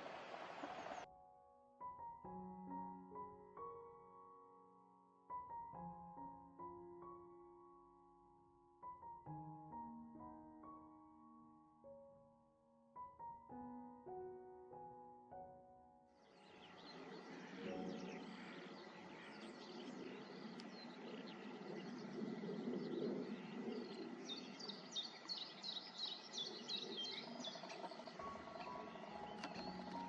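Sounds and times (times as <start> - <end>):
outdoor background noise: 0.0 - 1.1, 16.2 - 30.0
songbirds chirping and singing: 0.0 - 1.1, 16.2 - 30.0.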